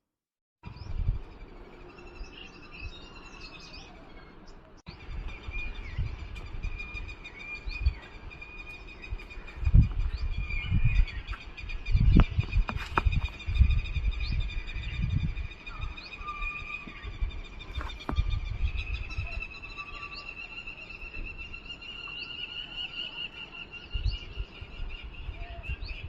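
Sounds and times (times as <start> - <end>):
birds chirping: 0.6 - 26.0.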